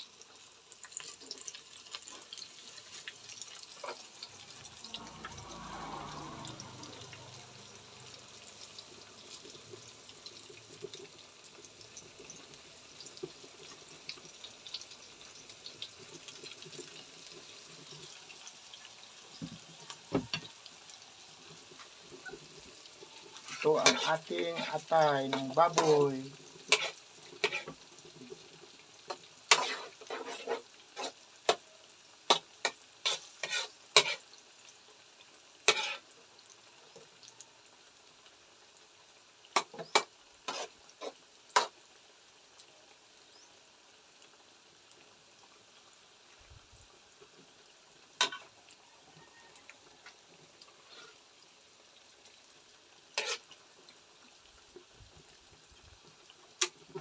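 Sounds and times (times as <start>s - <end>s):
faint sizzling in a pan: 0.0s - 57.0s
spatula scraping and clacking pan: 1.0s - 9.9s, 19.4s - 20.5s, 21.5s - 31.7s, 32.3s - 34.3s, 35.6s - 36.1s, 39.6s - 41.8s, 48.2s - 48.6s, 50.0s - 51.2s, 53.2s - 53.6s, 56.6s - 57.0s.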